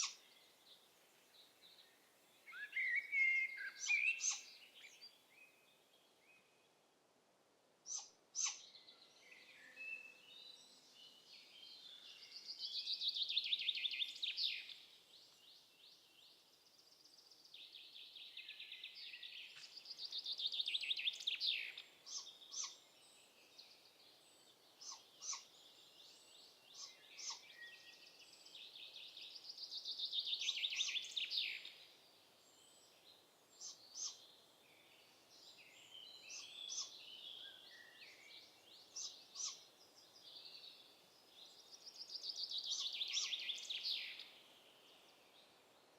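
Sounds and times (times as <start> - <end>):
songbird singing: 0.0 - 7.0, 7.8 - 45.9
bird chirps: 2.5 - 5.6, 7.9 - 15.5, 24.8 - 31.8, 34.9 - 44.4.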